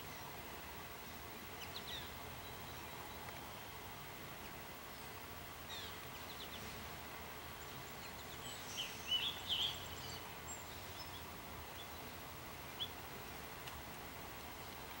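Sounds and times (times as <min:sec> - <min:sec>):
songbirds chirping: 0:00.0 - 0:15.0
steady outdoor hiss: 0:00.0 - 0:15.0.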